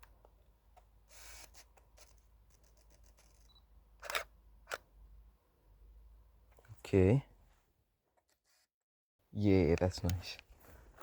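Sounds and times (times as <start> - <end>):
camera shutter clicks: 3.1 - 4.8.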